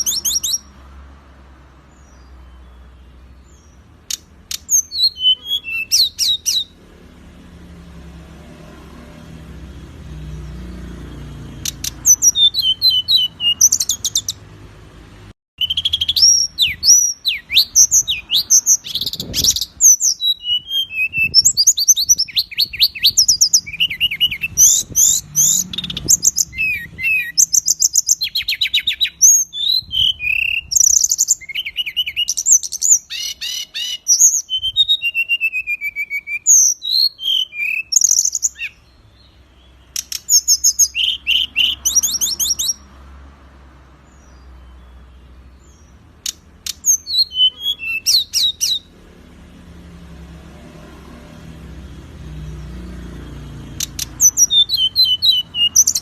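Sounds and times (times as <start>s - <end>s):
songbird harsh repeated notes: 0.0s - 0.8s, 1.9s - 6.9s, 10.1s - 14.6s, 15.6s - 42.9s, 44.6s - 48.9s, 53.5s - 56.0s.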